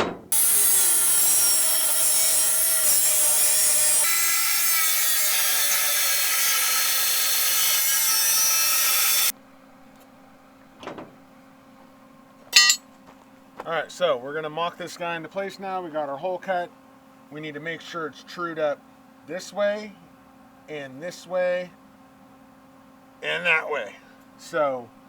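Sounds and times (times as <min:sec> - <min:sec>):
power tool cutting steel: 0:00.3 - 0:09.3.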